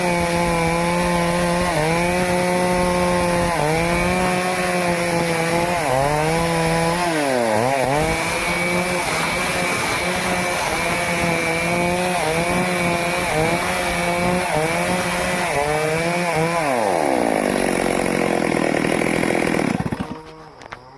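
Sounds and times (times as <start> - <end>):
chainsaw cutting wood: 0.0 - 20.9.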